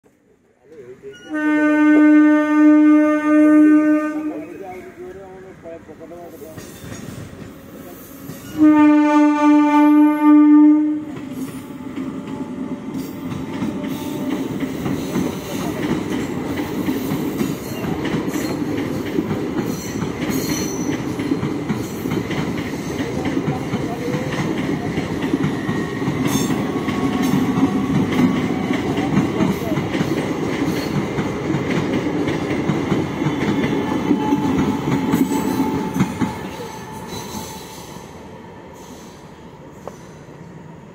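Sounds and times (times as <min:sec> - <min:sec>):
train coaches rumbling on rails: 0:00.7 - 0:40.9
train horn blast: 0:01.2 - 0:04.6, 0:08.5 - 0:11.2.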